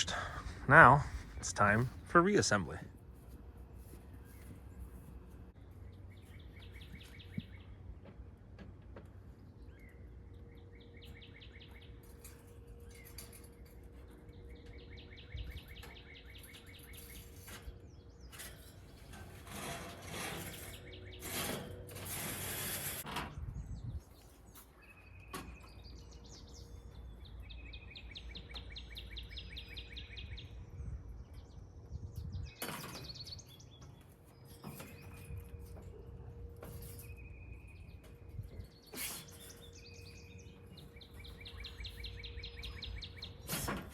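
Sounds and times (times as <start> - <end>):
songbird trilling: 38.6 - 43.5.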